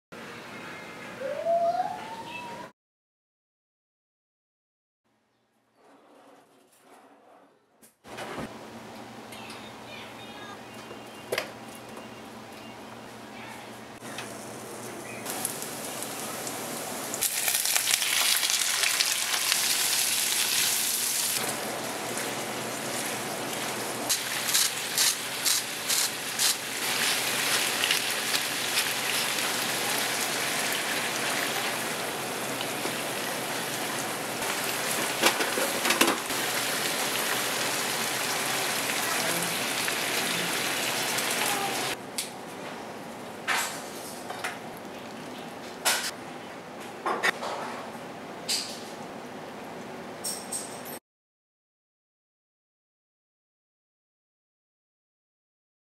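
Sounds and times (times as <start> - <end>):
butter sizzling in a frying pan: 15.3 - 41.4.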